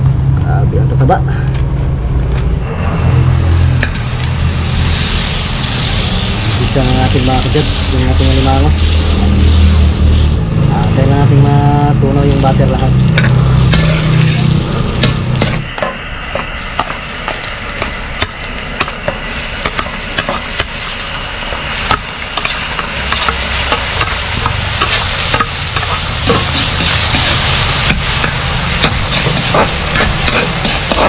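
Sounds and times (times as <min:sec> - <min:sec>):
low hum: 0:00.0 - 0:31.0
butter sizzling in a wok: 0:03.4 - 0:10.7, 0:12.3 - 0:15.8, 0:16.5 - 0:31.0
metal spatula scraping a pan: 0:13.2 - 0:15.9, 0:24.8 - 0:31.0.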